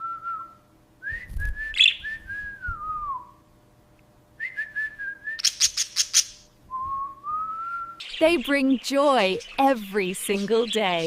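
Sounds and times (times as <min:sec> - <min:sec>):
budgerigar whistling: 0:01.7 - 0:02.1.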